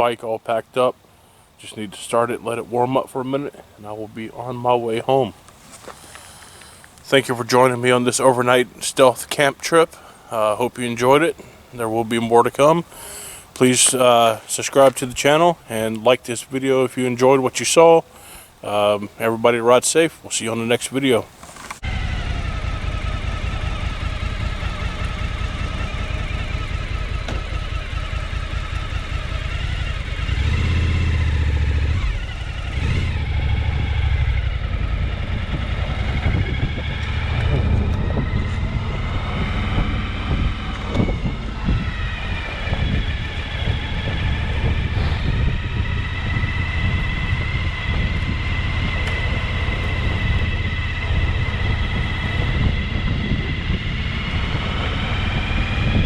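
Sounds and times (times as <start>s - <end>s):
motorcycle engine starting and revving: 21.3s - 56.0s.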